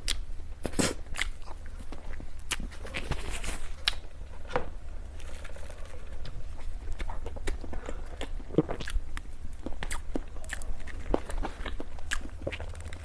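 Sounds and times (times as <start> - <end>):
person chewing food: 0.0 - 3.0, 5.1 - 13.0
steady low hum: 0.0 - 13.0.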